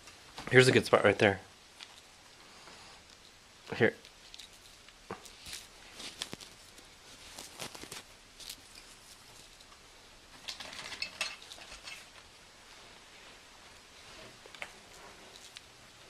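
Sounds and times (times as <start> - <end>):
branches rustling: 4.0 - 16.0.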